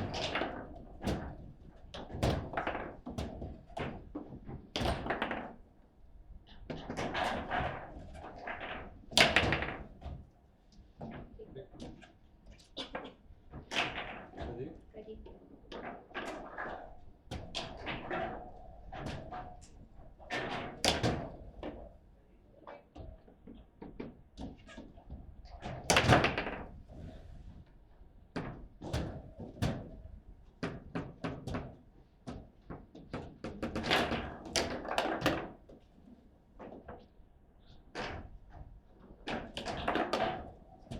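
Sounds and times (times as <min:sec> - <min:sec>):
foosball clacks and thuds: 0:00.0 - 0:05.6, 0:06.7 - 0:10.0, 0:23.2 - 0:26.8, 0:30.6 - 0:35.8, 0:39.2 - 0:40.6.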